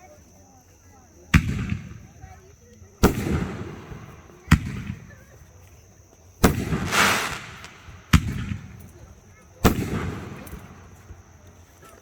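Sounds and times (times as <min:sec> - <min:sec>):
fireworks booming: 0:06.4 - 0:11.2
fireworks crackle: 0:06.4 - 0:11.3.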